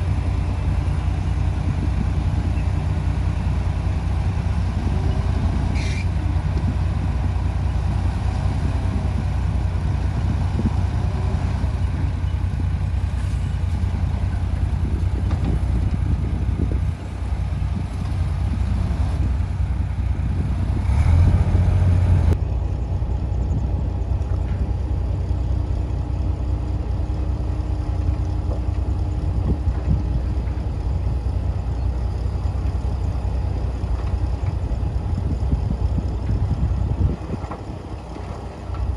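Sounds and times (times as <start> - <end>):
heavy diesel engine rumbling: 0.0 - 38.9.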